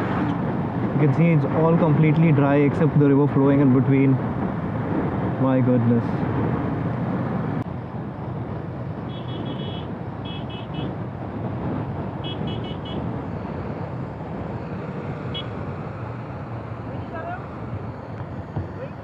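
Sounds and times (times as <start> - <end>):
motorcycle road and wind rush: 0.0 - 19.0.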